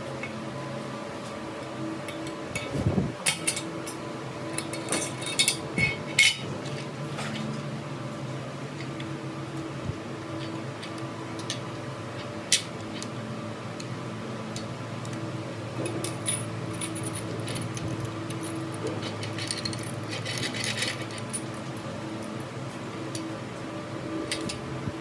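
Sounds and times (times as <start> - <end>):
steady machine hum: 0.0 - 25.0
metal parts clicking: 2.2 - 3.6, 16.0 - 21.6.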